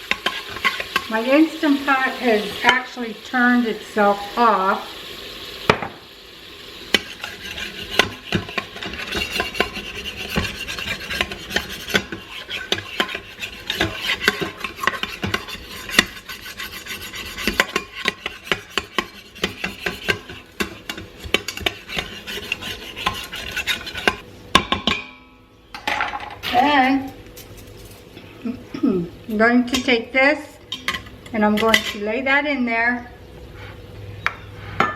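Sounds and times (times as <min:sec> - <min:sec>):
utensil scraping bottom of pot: 0:00.0 - 0:01.2, 0:06.9 - 0:24.2.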